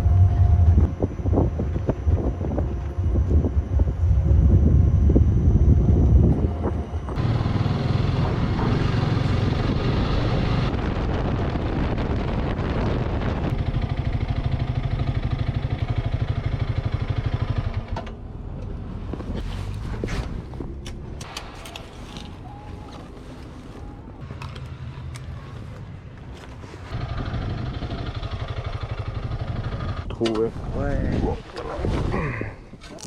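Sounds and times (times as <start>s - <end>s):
wind buffeting microphone: 0.0s - 15.6s, 26.9s - 33.0s
motorcycle engine running: 0.0s - 18.8s, 26.9s - 30.1s.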